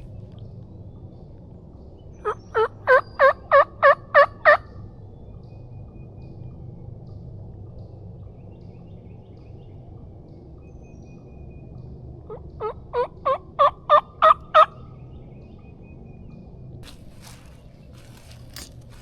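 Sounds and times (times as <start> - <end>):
turkey call yelps: 2.2 - 4.6, 12.6 - 14.7.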